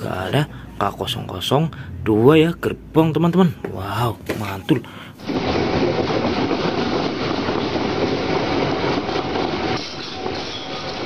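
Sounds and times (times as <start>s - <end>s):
train wheels rolling on rails: 5.2s - 11.0s.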